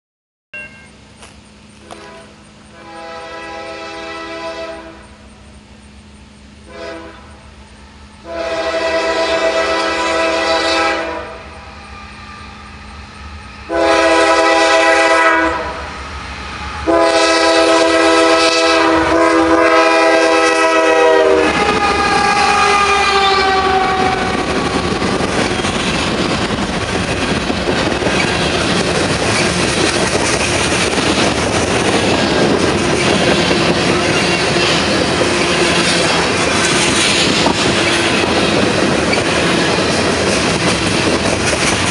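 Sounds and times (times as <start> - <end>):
train wheels clattering on rails: 0.6 - 3.1, 11.4 - 41.9
diesel locomotives pulling hard: 0.6 - 41.9
locomotive air horn blasts: 1.8 - 5.4, 6.6 - 13.0, 13.6 - 25.1.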